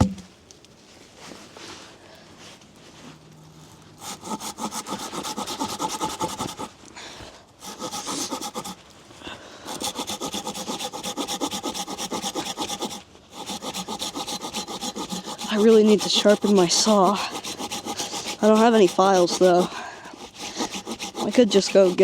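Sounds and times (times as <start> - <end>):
hand saw cutting log: 4.0 - 6.8, 7.6 - 8.8, 9.6 - 22.0.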